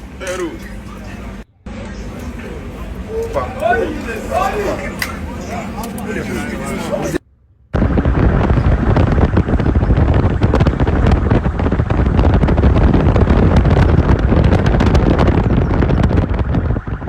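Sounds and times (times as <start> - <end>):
rough rumbling with crackle: 7.1 - 17.0.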